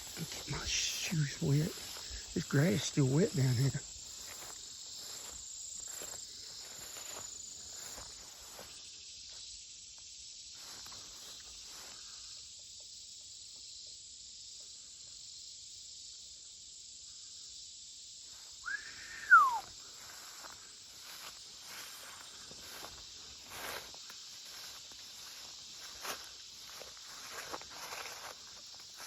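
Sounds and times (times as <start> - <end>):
footsteps through wet grass: 0.0 - 8.8, 20.0 - 29.0
crickets and insects chirping: 0.0 - 29.0
whistled sliding note: 18.7 - 19.7.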